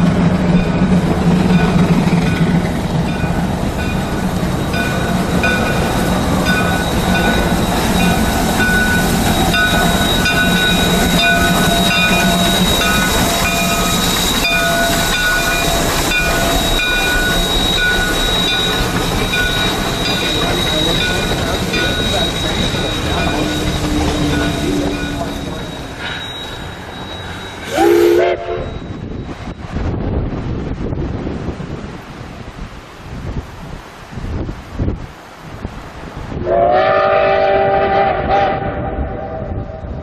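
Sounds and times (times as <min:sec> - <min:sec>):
train rumbling past: 0:00.0 - 0:40.0
wheels squealing: 0:03.2 - 0:29.6.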